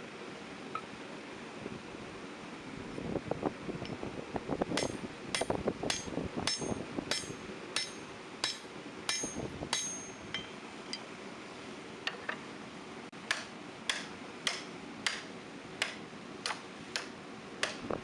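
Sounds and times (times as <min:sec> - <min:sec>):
hammer blows on anvil: 0:04.8 - 0:11.0.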